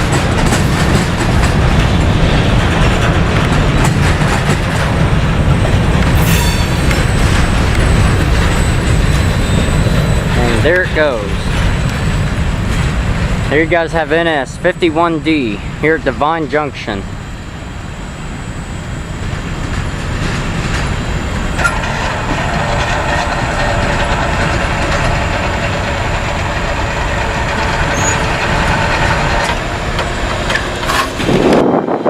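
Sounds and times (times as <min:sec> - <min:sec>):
train wheels rumbling on rails: 0:00.0 - 0:32.0
high steady tones: 0:05.9 - 0:30.8.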